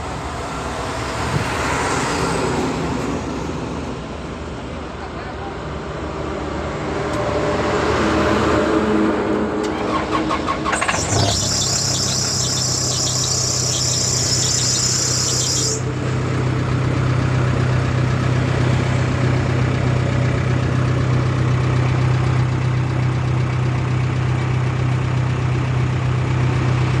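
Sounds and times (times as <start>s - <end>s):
diesel engine cranking and idling: 9.3s - 27.0s.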